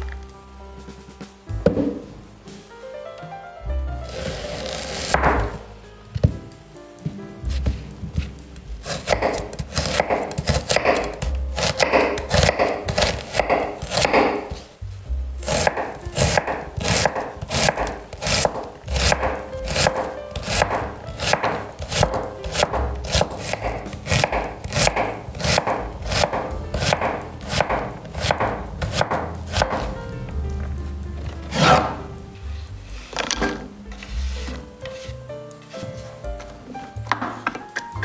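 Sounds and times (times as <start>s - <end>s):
knife chopping on wooden board: 4.2s - 5.6s, 7.6s - 14.7s, 15.4s - 29.9s.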